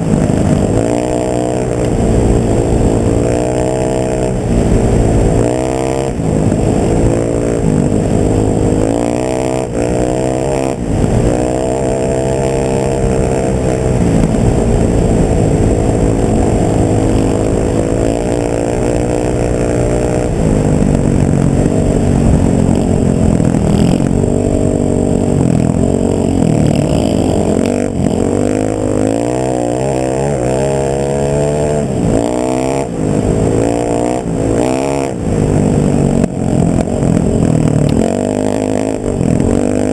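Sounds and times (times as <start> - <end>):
vehicle engine revving: 0.0 - 39.9.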